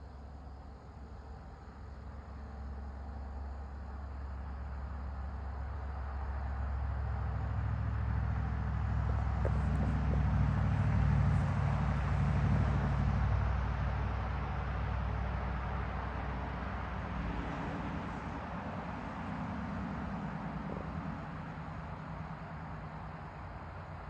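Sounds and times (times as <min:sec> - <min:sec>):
jet engines rumbling: 0:17.0 - 0:24.0.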